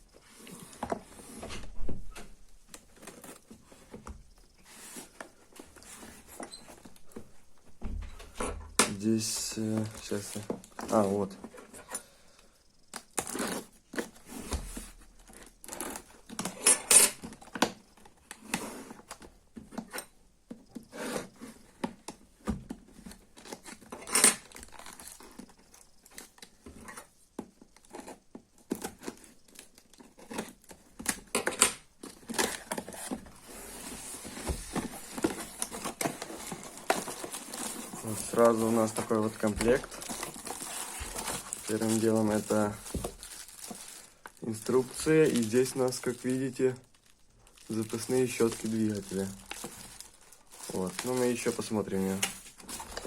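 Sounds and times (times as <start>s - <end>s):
cardboard tearing and crinkling: 32.0s - 53.0s.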